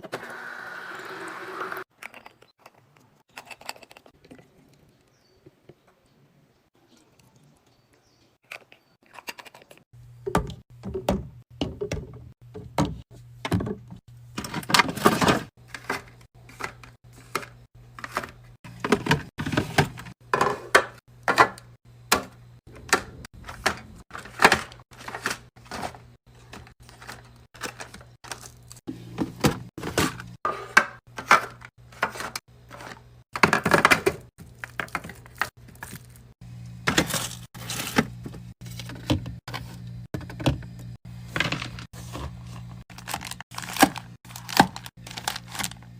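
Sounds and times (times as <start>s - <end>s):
food packages clicking and knocking: 8.4s - 45.9s
fridge hum: 10.0s - 45.9s
packaging rustling: 41.4s - 45.9s.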